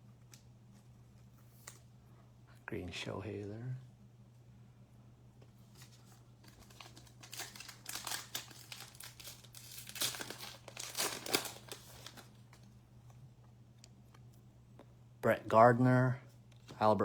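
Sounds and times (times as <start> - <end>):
wrapper crinkling and tearing: 5.8 - 12.7.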